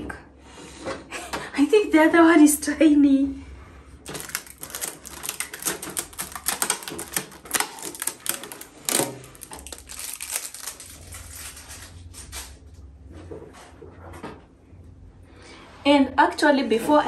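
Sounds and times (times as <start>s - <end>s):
packaging clicks and crackles: 4.0s - 12.5s.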